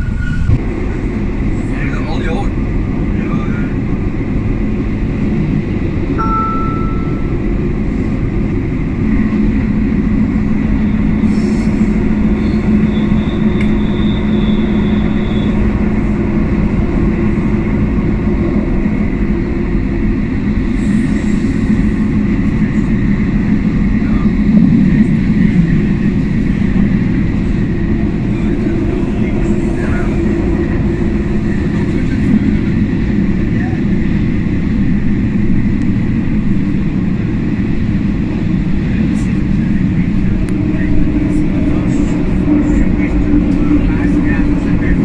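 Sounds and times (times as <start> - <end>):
train rumble with low hum: 0.0 - 45.0
faint high whine: 6.2 - 7.4.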